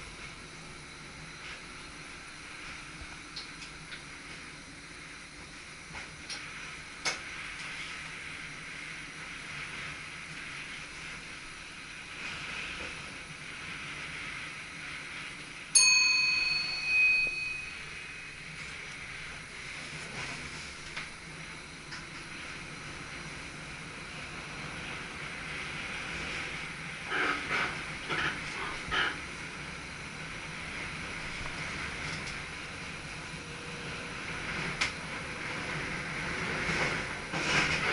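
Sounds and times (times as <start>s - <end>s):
train cab hum: 0.0s - 37.9s
bell-like ding: 15.8s - 18.8s.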